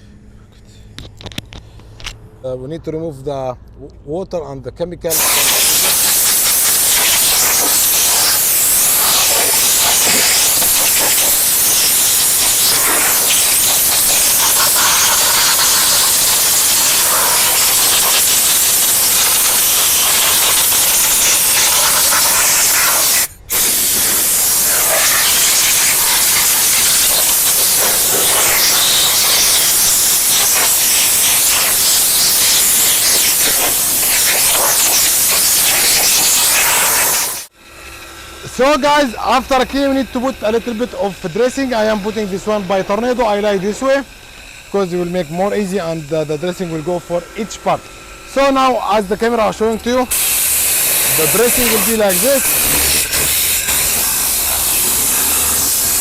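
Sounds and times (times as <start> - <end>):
compressed air gun hissing: 5.1 - 56.0.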